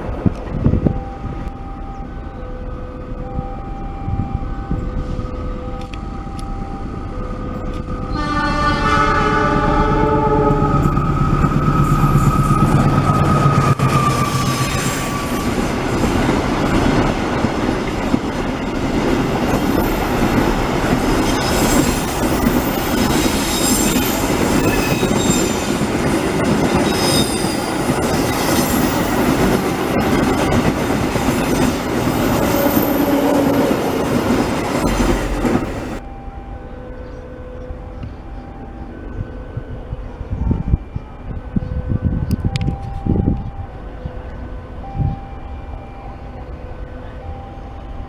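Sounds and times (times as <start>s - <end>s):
wheels rumbling on track: 0.0s - 48.0s
train wheels squealing: 10.4s - 16.2s, 21.2s - 30.7s.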